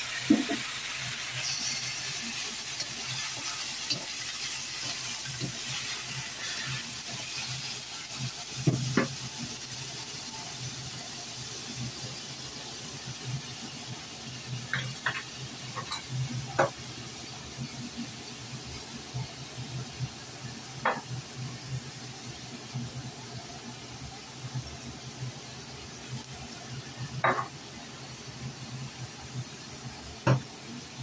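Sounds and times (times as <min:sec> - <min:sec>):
chicken sizzling in a wok: 0:00.0 - 0:31.0
knocks against the pan: 0:16.6 - 0:16.8, 0:20.8 - 0:21.1, 0:27.2 - 0:27.5, 0:30.2 - 0:30.5.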